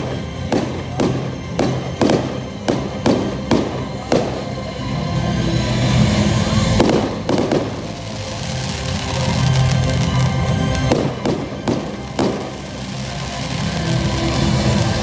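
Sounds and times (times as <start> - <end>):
fireworks bangs: 0.0 - 15.0
fireworks crackling: 0.0 - 15.0
music: 0.0 - 15.0.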